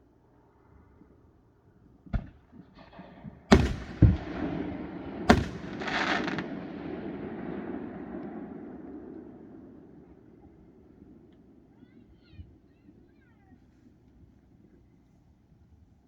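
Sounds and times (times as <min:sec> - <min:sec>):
fireworks booming: 0:02.1 - 0:11.3
fireworks crackling: 0:02.8 - 0:11.3
lingering rumble: 0:03.5 - 0:11.7.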